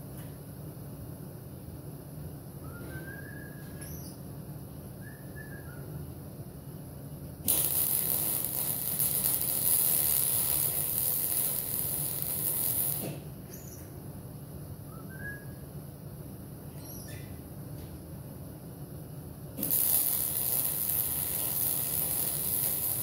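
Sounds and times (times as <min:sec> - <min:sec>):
welder crackling sizzle: 0:07.4 - 0:13.3, 0:19.5 - 0:23.0.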